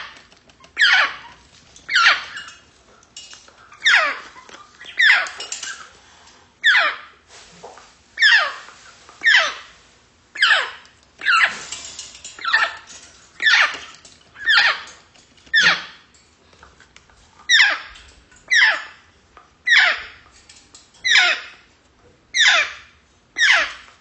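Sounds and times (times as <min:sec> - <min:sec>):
parrot squeaky call: 0:00.8 - 0:01.2, 0:03.8 - 0:05.4, 0:06.6 - 0:07.1, 0:08.2 - 0:08.6, 0:09.2 - 0:09.6, 0:10.4 - 0:11.6, 0:19.7 - 0:20.2, 0:21.0 - 0:21.6, 0:22.4 - 0:22.8, 0:23.4 - 0:23.8.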